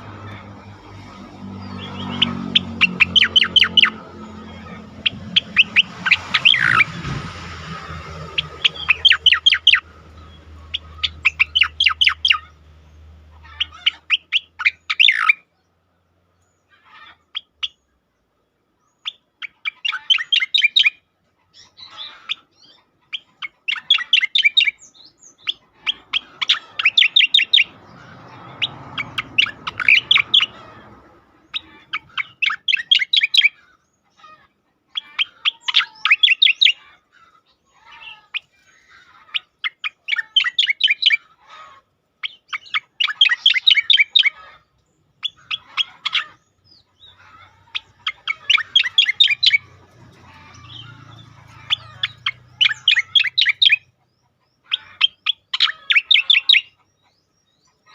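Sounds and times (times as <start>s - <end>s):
bird singing trilled notes: 0.0s - 15.4s, 31.4s - 34.3s, 37.6s - 41.2s, 42.2s - 57.9s.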